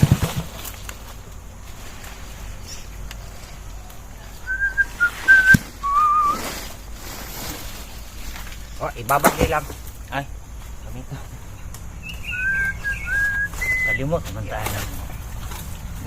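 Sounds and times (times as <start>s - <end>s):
person whistling: 4.5s - 6.4s, 12.2s - 14.0s.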